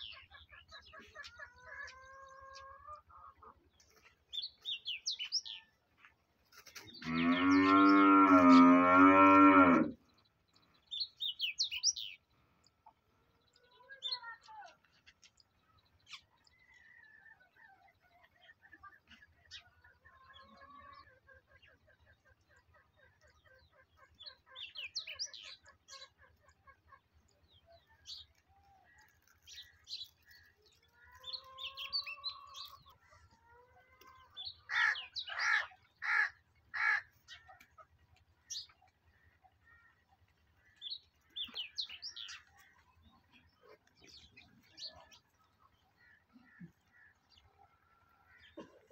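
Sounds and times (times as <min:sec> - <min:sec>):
birds chirping: 0:00.0 - 0:48.9
loud harsh bird calls: 0:34.2 - 0:37.8.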